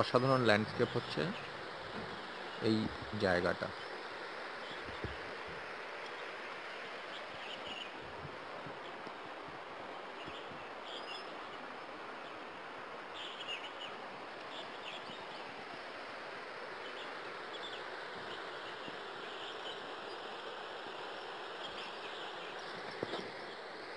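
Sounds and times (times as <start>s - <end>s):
steady rushing hiss: 0.0s - 23.9s
small birds chirping: 0.1s - 15.6s, 16.8s - 23.9s.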